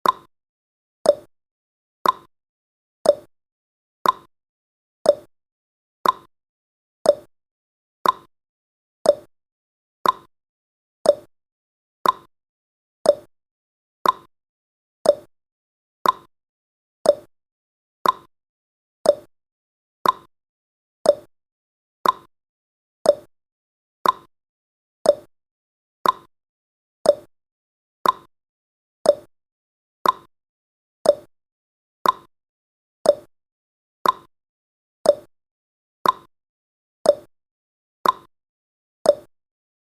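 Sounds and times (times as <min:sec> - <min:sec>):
clock tick-tock: 0:00.0 - 0:00.3, 0:01.0 - 0:01.3, 0:02.0 - 0:02.3, 0:03.0 - 0:03.3, 0:04.0 - 0:04.3, 0:05.0 - 0:05.3, 0:06.0 - 0:06.3, 0:07.0 - 0:07.3, 0:08.0 - 0:08.3, 0:09.0 - 0:09.3, 0:10.0 - 0:10.3, 0:11.0 - 0:11.3, 0:12.0 - 0:12.3, 0:13.0 - 0:13.3, 0:14.0 - 0:14.3, 0:15.0 - 0:15.3, 0:16.0 - 0:16.3, 0:17.0 - 0:17.3, 0:18.0 - 0:18.3, 0:19.0 - 0:19.3, 0:20.0 - 0:20.3, 0:21.0 - 0:21.3, 0:22.0 - 0:22.3, 0:23.0 - 0:23.3, 0:24.0 - 0:24.3, 0:25.0 - 0:25.3, 0:26.0 - 0:26.3, 0:27.0 - 0:27.3, 0:28.0 - 0:28.3, 0:29.0 - 0:29.3, 0:30.0 - 0:30.3, 0:31.0 - 0:31.3, 0:32.0 - 0:32.3, 0:33.0 - 0:33.3, 0:34.0 - 0:34.3, 0:35.0 - 0:35.3, 0:36.0 - 0:36.3, 0:37.0 - 0:37.3, 0:38.0 - 0:38.3, 0:39.0 - 0:39.4.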